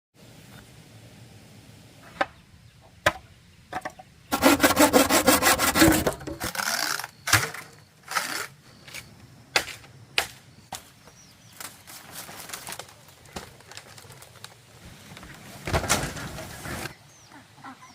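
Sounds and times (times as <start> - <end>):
saw strokes on bamboo: 4.3 - 8.5.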